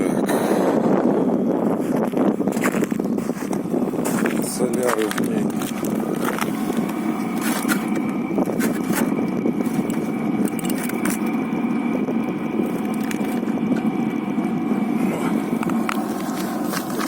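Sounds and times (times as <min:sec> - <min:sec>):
air heater rattling rumble: 0:00.0 - 0:17.0
heater whine: 0:00.0 - 0:17.0
scattered clicks: 0:04.2 - 0:11.4.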